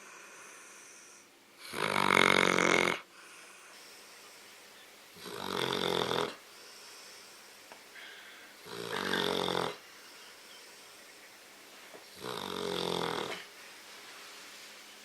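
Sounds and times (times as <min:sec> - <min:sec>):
dog snoring loudly: 0:01.6 - 0:03.1, 0:05.2 - 0:06.4, 0:08.6 - 0:09.8, 0:12.1 - 0:13.5.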